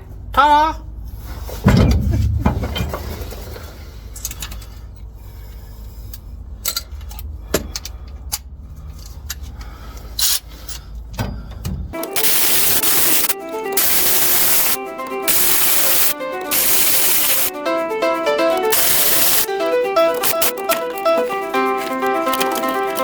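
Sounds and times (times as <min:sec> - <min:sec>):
low rumble: 0:00.9 - 0:04.4
music: 0:12.0 - 0:23.0
metallic clinks and rattles of tools: 0:18.5 - 0:23.0.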